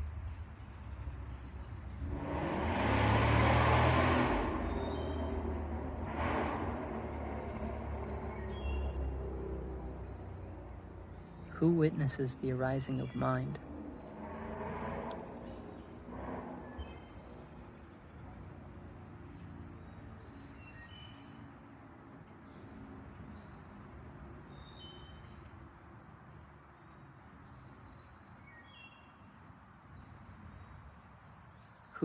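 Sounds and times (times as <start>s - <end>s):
insect drone: 0.0s - 32.0s
high bird chirps: 4.6s - 6.1s, 7.0s - 10.4s.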